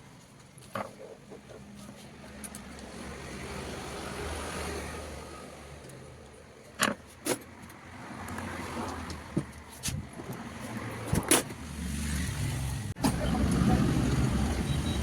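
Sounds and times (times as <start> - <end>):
motor vehicle passing: 10.2 - 15.0.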